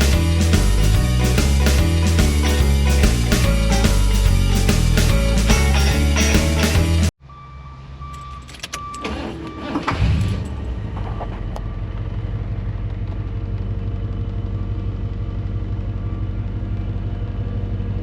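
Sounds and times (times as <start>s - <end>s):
engine starting and idling: 8.7s - 12.3s.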